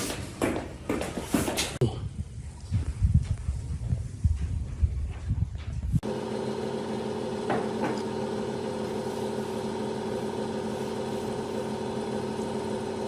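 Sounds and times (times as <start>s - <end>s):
electric machine humming: 6.0s - 13.0s.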